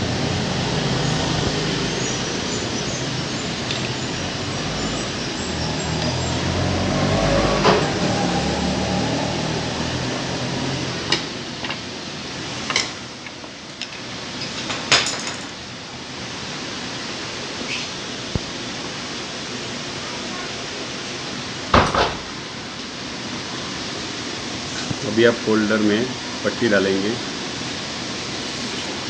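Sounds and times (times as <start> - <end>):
metal parts clicking and clinking: 28.4 - 29.0.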